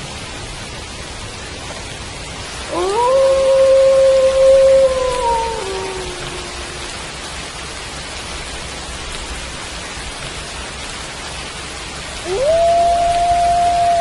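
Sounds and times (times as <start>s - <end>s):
steady rain falling: 0.0s - 14.0s
wolf howling: 2.7s - 7.1s, 12.2s - 14.0s.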